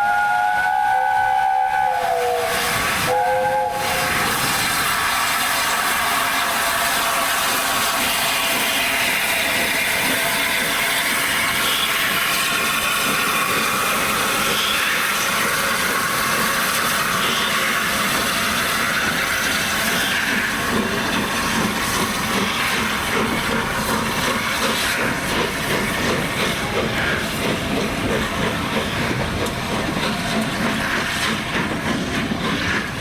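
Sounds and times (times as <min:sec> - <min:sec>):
steam locomotive whistle: 0:00.0 - 0:09.3, 0:16.1 - 0:18.9
moving train hiss: 0:00.0 - 0:33.0.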